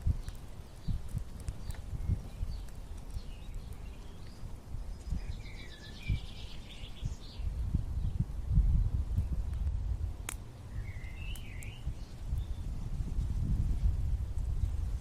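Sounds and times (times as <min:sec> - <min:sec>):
small birds chirping: 0:00.0 - 0:12.9
bird trill: 0:05.1 - 0:07.4, 0:10.7 - 0:12.6.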